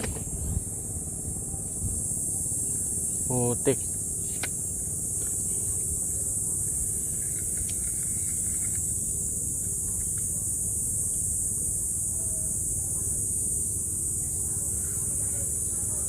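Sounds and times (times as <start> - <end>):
low even rumble: 0.0 - 2.2
high insect drone: 0.0 - 16.0.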